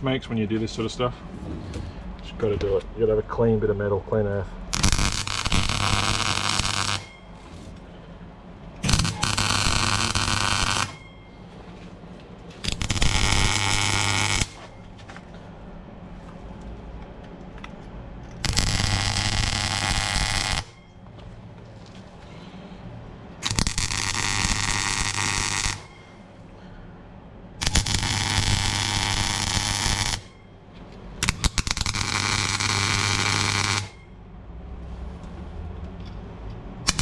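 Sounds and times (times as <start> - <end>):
welder low hum: 4.6 - 7.8, 8.8 - 11.5, 12.6 - 14.8, 18.4 - 21.0, 23.0 - 26.3, 27.5 - 30.4, 31.2 - 34.1
welding arc crackling: 4.7 - 7.2, 8.8 - 11.0, 12.6 - 14.8, 18.4 - 20.8, 23.4 - 26.0, 27.6 - 30.4, 31.2 - 34.1.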